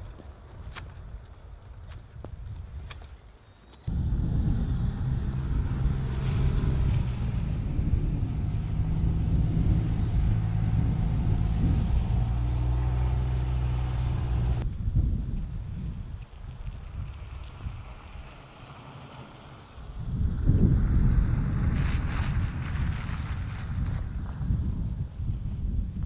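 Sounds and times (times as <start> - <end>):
vehicle engine humming: 3.8 - 14.7, 16.9 - 24.4.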